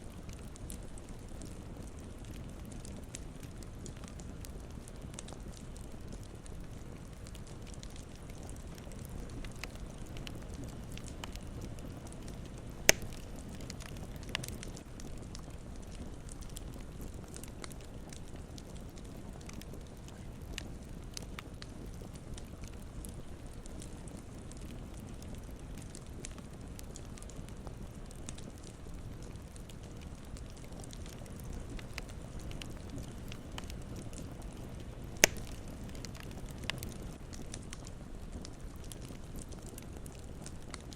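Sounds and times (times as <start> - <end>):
campfire crackling: 0.0 - 40.9
fire popping sharply: 8.5 - 14.6, 35.2 - 36.9
loud sharp pop: 12.9 - 13.2, 35.2 - 35.5.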